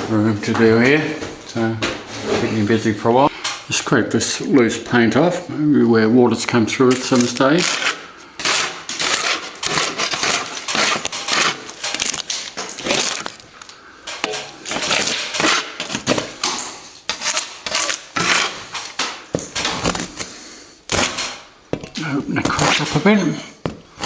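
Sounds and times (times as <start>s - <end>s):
metal scraper scraping paint: 6.8s - 13.4s, 14.1s - 20.3s, 22.0s - 23.3s.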